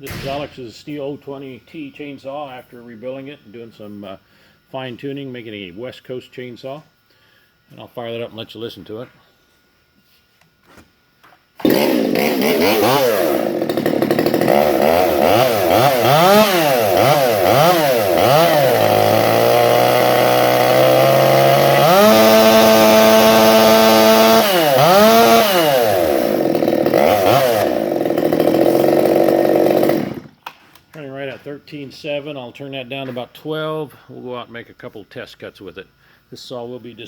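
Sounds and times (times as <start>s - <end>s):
chainsaw revving: 11.6s - 30.4s.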